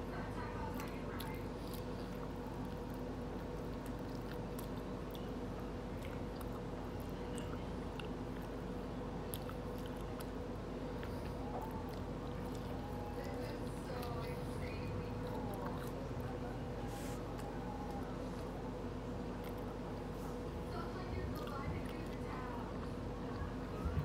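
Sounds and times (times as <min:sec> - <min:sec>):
low steady hum: 0:00.0 - 0:24.0
biting and chewing food: 0:00.3 - 0:24.0
wet mouth clicks and smacks: 0:09.2 - 0:10.4.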